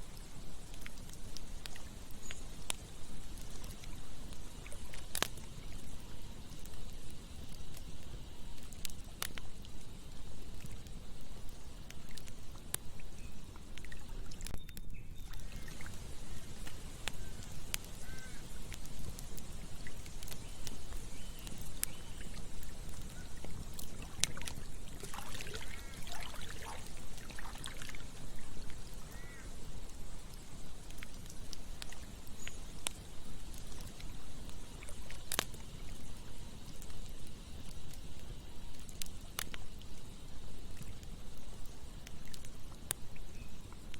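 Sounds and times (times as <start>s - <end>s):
campfire crackling and popping: 0.0s - 43.9s
flowing river water: 15.3s - 32.3s.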